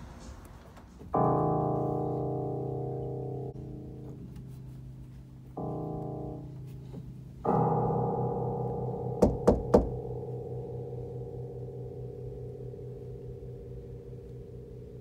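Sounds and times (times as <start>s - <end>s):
piano chords on keyboard: 1.0s - 15.0s
sharp knocks: 9.2s - 10.1s.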